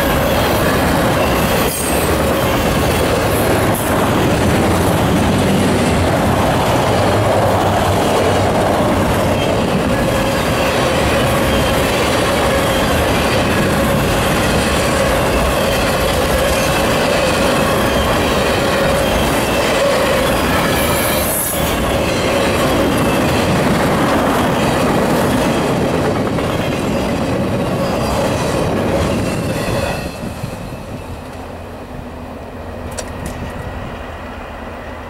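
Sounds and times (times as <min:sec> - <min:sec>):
wheel squeal: 0:00.0 - 0:03.6, 0:09.4 - 0:23.4
freight cars rumbling on rails: 0:00.0 - 0:35.0.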